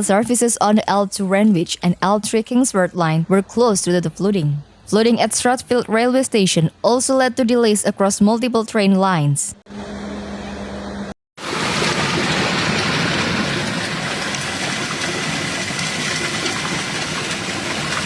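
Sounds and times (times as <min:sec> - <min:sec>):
heavy rain: 0:11.4 - 0:18.0
rushing storm water: 0:11.4 - 0:18.0.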